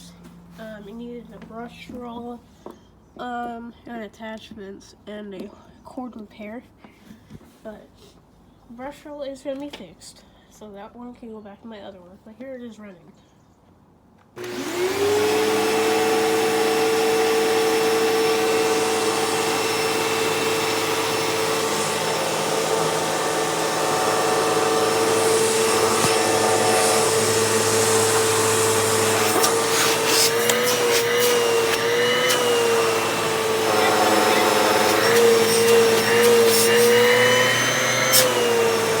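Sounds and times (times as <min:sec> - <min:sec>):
upright vacuum motor whine: 0:14.4 - 0:39.0.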